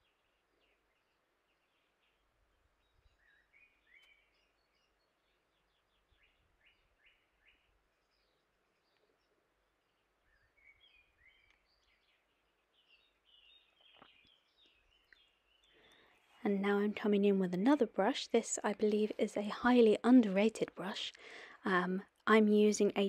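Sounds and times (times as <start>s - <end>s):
songbird twittering: 2.8s - 9.1s, 10.2s - 16.1s.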